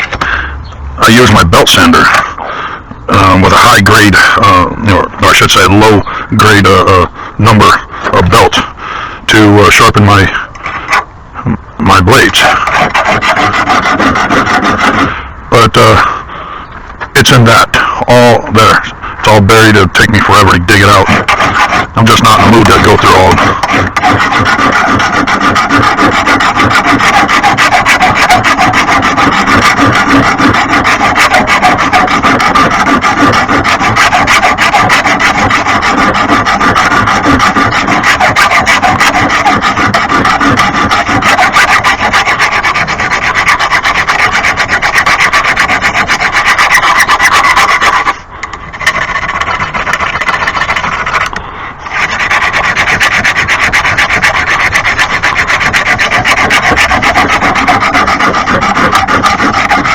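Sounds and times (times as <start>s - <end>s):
mower blade being sharpened: 12.4s - 15.1s, 20.9s - 48.2s.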